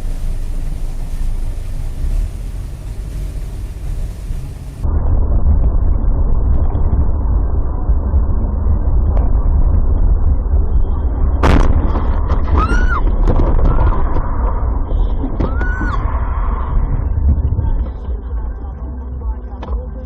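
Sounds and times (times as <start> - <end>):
vehicle rumbling on road: 0.0 - 20.0
collision bang: 11.4 - 12.5
high rising and falling cries: 12.4 - 14.1, 15.2 - 17.2.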